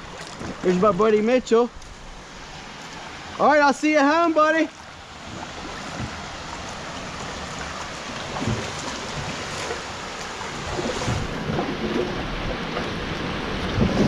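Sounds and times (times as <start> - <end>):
creek water rushing: 0.0 - 14.0
faint splashes or knocks: 5.2 - 6.2, 7.2 - 12.9.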